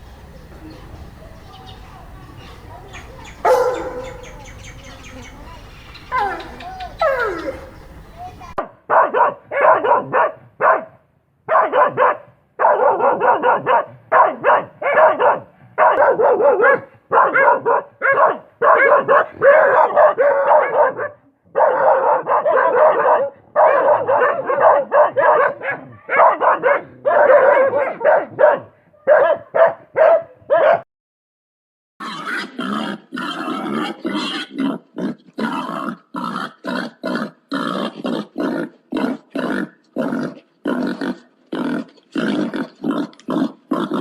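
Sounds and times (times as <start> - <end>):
dog barking: 2.8 - 4.8, 8.6 - 30.9, 33.4 - 34.6.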